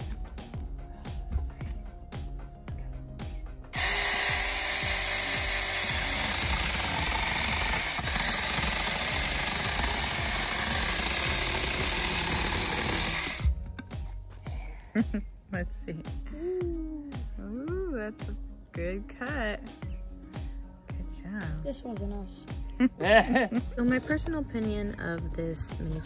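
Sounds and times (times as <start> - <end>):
chainsaw cutting branch: 3.8 - 13.6.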